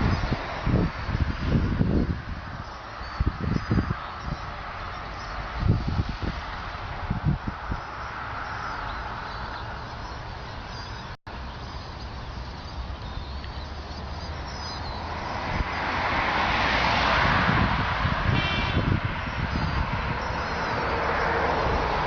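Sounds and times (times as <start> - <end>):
steady rush of wind: 0.0 - 22.0
faint high bird chirps: 7.8 - 15.2.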